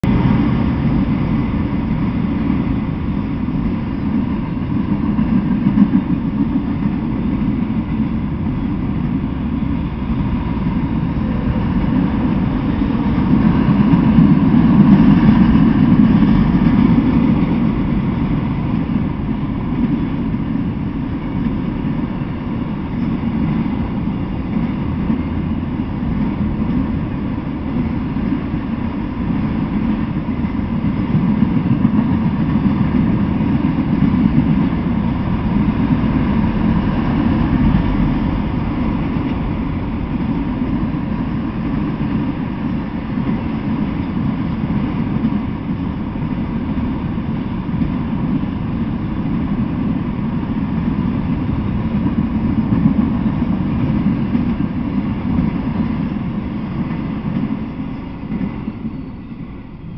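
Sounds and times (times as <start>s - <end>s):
steel wheels rumbling on rails: 0.0s - 59.9s.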